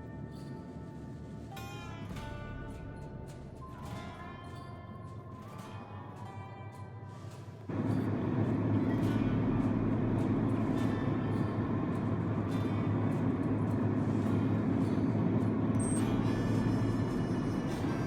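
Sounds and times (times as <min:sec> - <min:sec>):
road rumble: 0:07.7 - 0:18.0
truck engine drone: 0:07.7 - 0:18.0.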